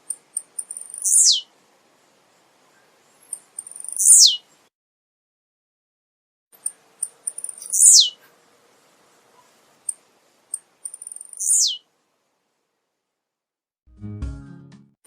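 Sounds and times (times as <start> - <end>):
bird singing ticks and down-sweep: 0.0 - 4.7, 6.6 - 8.4, 9.3 - 11.9.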